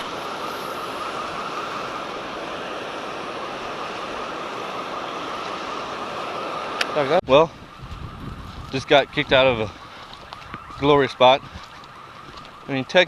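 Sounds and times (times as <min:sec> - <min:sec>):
water roaring through spillway: 0:00.0 - 0:07.2.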